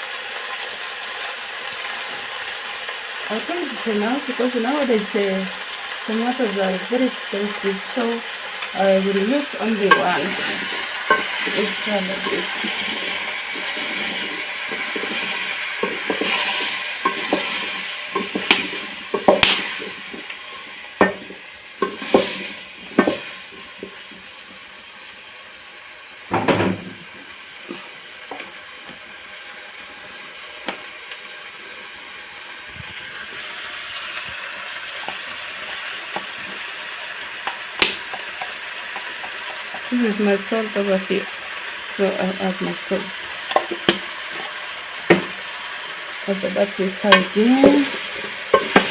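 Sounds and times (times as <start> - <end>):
tomatoes sizzling in a pot: 0.0 - 48.9
spoon scraping a pot: 9.8 - 24.0, 47.1 - 48.9
loud knock: 26.3 - 27.0.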